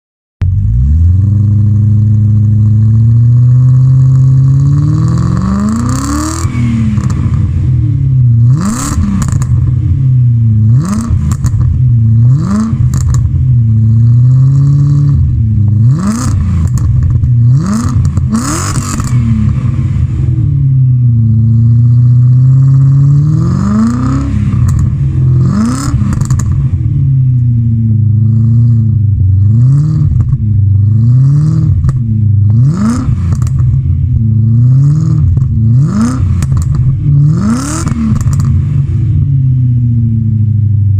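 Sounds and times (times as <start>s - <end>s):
car engine idling and revving: 0.4s - 40.9s
exhaust cracks: 4.4s - 40.9s.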